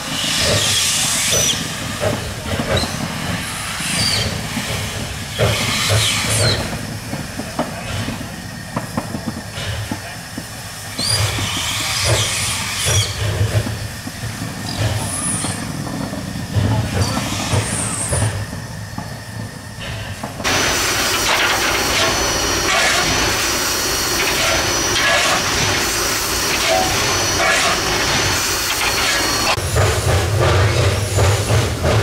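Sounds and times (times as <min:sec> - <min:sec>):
low locomotive rumble: 0:00.0 - 0:32.0
steam hiss bursts: 0:17.0 - 0:32.0.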